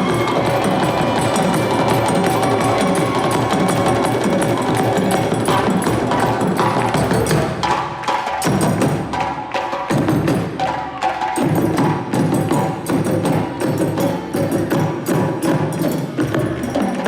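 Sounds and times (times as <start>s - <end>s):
wood block strikes: 0.0s - 10.3s
hand-drum strikes: 0.0s - 17.0s
percussion ensemble playing: 0.0s - 17.0s.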